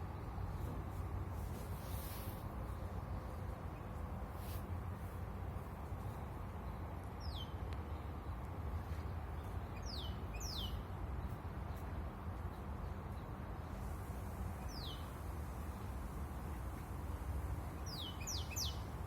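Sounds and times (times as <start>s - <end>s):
songbird chirping: 14.6s - 19.0s.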